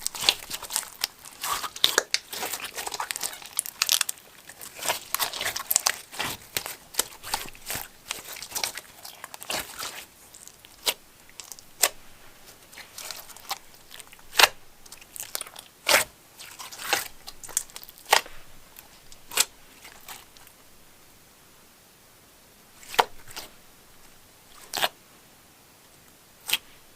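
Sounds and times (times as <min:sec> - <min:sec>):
slime crackling and popping: 0:00.0 - 0:20.5.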